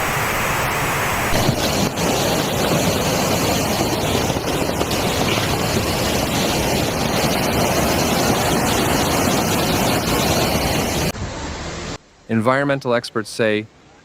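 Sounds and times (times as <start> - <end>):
floodwater rushing: 0.0 - 12.0
wind buffeting microphone: 1.3 - 11.2.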